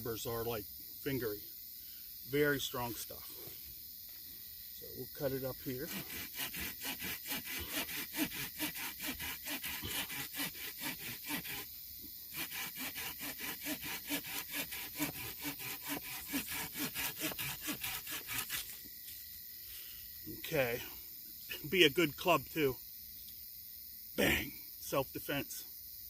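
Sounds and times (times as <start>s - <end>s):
hand saw cutting wood: 5.7s - 11.7s, 12.3s - 18.8s.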